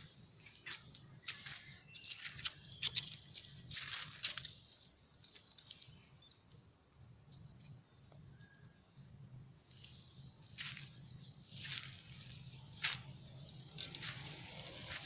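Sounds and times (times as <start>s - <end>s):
sharp crackles and rustles: 0.0s - 6.2s, 10.6s - 15.0s
high-pitched insect buzz: 0.0s - 6.4s.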